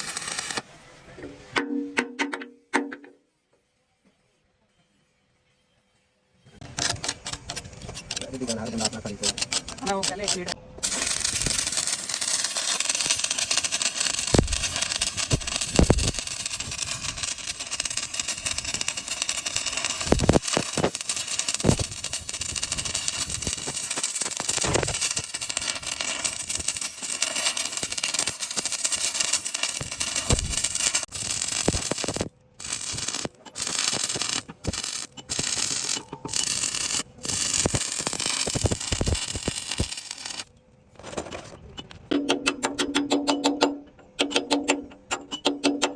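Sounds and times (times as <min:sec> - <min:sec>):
arc welding crackling hiss: 0:00.0 - 0:00.6, 0:06.8 - 0:40.5.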